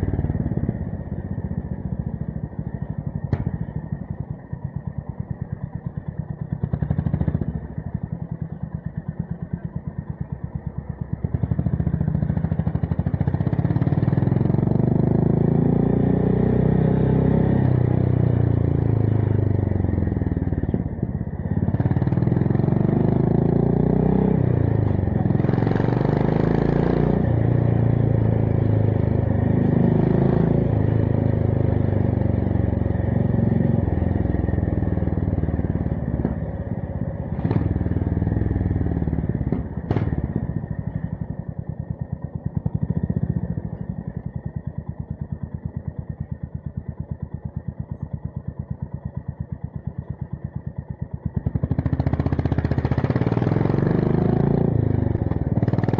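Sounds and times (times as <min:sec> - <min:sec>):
motorcycle engine revving: 0:11.2 - 0:55.9.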